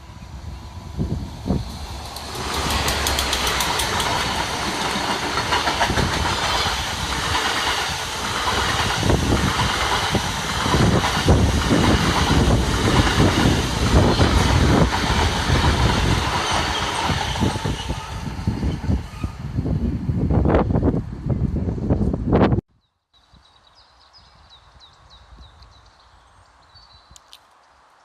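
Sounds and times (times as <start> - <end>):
train rolling hiss: 0.0 - 19.8
train wheels clattering on rails: 1.6 - 19.2.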